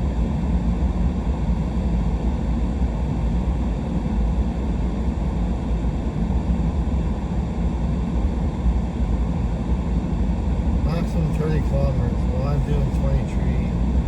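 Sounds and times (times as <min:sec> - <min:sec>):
truck driving slowly: 0:10.9 - 0:13.8.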